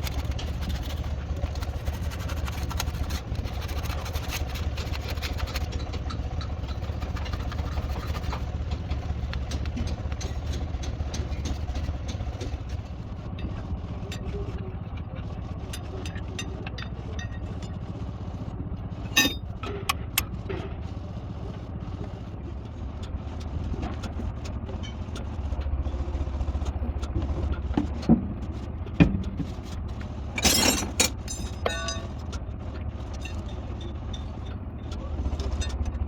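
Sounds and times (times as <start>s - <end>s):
engine humming: 0.0s - 36.0s
metallic knocks and clanks: 19.1s - 20.2s, 30.4s - 32.3s.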